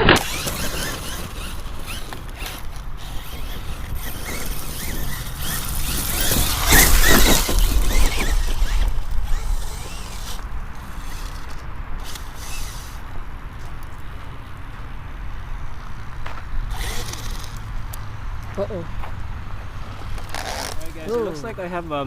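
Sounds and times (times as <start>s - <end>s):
rc truck motor: 0.0s - 13.8s, 16.7s - 17.8s
tyres spinning through dirt: 0.0s - 14.0s, 16.7s - 17.8s.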